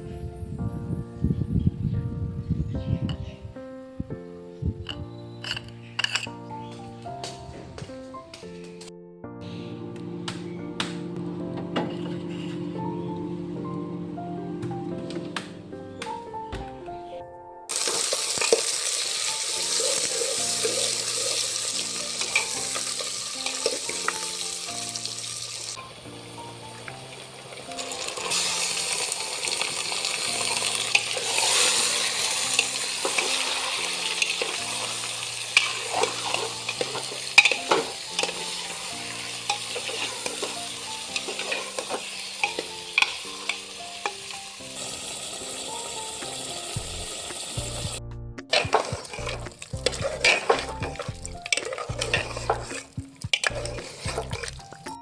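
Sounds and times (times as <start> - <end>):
soft background music: 0.0 - 55.0
spoon scraping a pan: 4.8 - 6.5, 11.8 - 13.0, 17.7 - 24.8, 28.2 - 44.4, 48.5 - 55.0
food sizzling in a pan: 17.7 - 55.0.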